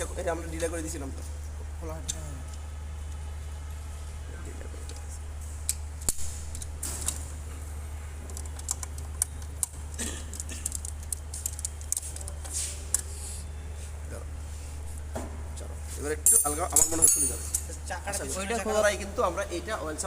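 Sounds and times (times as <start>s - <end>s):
steady low hum: 0.0s - 20.0s
wrenches clinking on bolts: 16.2s - 17.7s.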